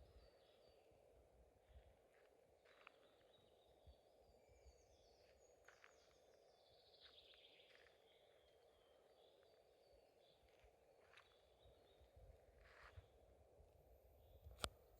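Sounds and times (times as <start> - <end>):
small birds chirping: 2.7 - 13.1.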